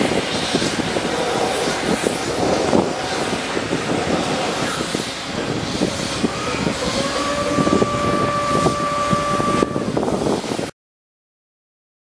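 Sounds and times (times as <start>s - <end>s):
high-pitched squeal: 0.4s - 10.4s.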